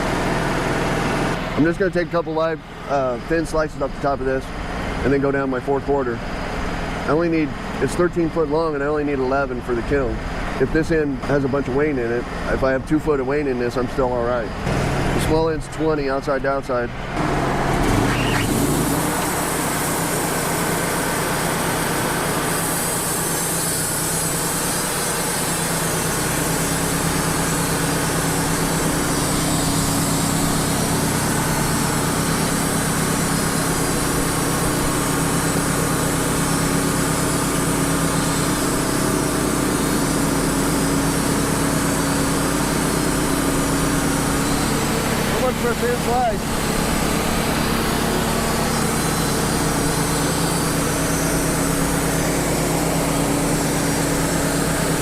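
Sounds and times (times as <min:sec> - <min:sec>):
sawmill engine humming: 0:00.0 - 0:55.0
band blade sawing log: 0:22.0 - 0:55.0.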